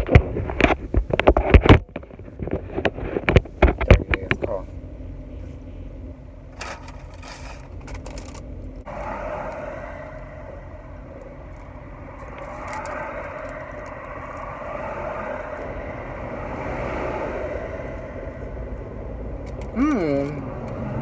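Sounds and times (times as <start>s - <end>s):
road and engine rumble: 0.0s - 21.0s
clicks and rattles: 6.6s - 8.5s.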